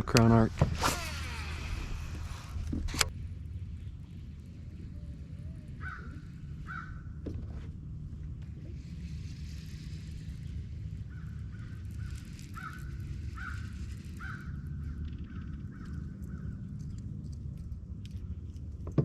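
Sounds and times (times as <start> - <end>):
low rumble: 0.0 - 12.1
crow calling: 5.8 - 7.1, 11.1 - 16.6.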